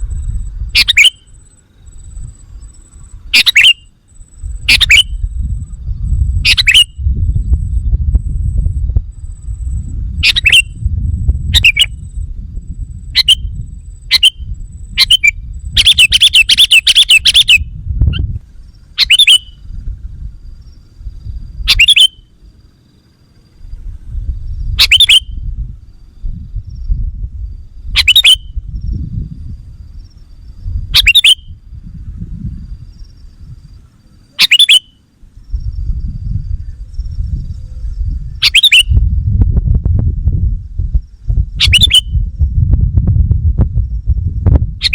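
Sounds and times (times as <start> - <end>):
low rumble: 0.0 - 3.4, 4.1 - 16.4, 17.6 - 21.7, 23.5 - 34.2, 35.2 - 44.9
bulbul chirping: 0.7 - 5.2, 6.4 - 7.0, 10.2 - 10.8, 11.5 - 12.0, 13.1 - 19.6, 21.7 - 22.3, 24.8 - 25.4, 27.9 - 28.6, 30.9 - 31.6, 34.2 - 35.0, 38.4 - 39.0, 41.6 - 42.2.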